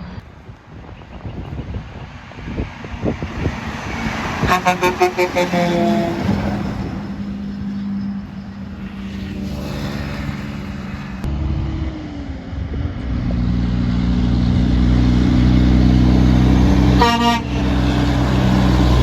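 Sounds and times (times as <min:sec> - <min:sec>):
truck engine droning: 0:00.9 - 0:19.0
truck air horn blasts: 0:04.4 - 0:06.8, 0:16.7 - 0:19.0.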